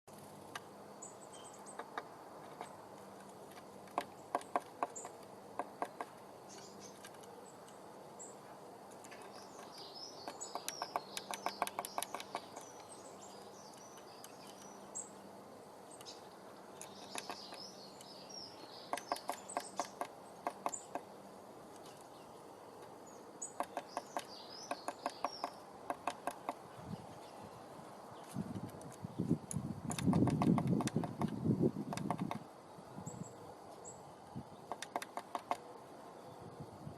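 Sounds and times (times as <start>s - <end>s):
bird beak tapping wood: 3.5s - 7.3s, 9.0s - 12.9s, 16.8s - 17.7s, 18.9s - 21.1s, 23.5s - 26.6s, 29.9s - 32.4s, 34.7s - 35.6s.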